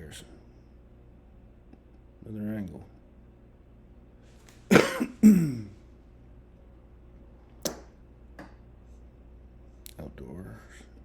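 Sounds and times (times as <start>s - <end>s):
man coughing: 4.7s - 5.8s.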